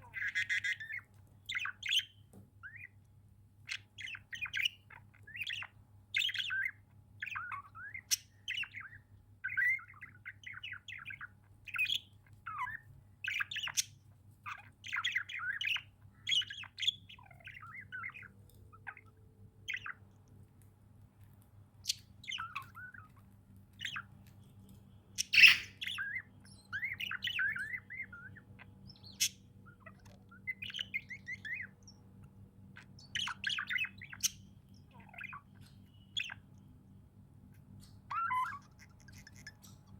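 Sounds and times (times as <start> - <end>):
budgerigars chirping: 0.0 - 3.0, 3.7 - 20.0, 21.8 - 32.1, 32.7 - 36.6, 37.5 - 39.9
budgerigar squawk: 25.2 - 26.2.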